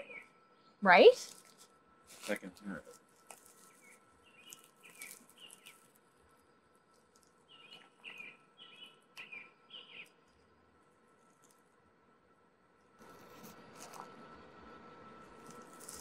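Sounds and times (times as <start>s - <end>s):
faint bird chirps: 0.0s - 0.8s, 3.5s - 6.6s, 7.4s - 10.6s.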